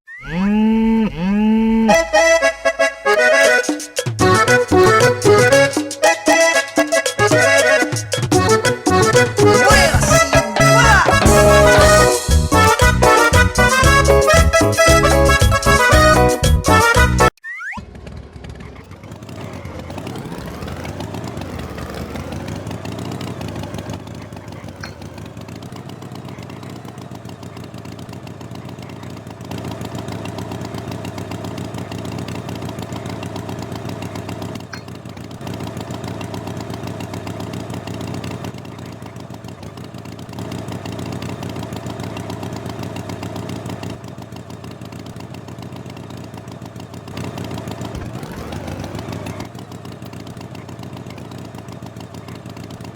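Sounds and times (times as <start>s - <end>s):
motor engine starting and running: 0.1s - 52.9s.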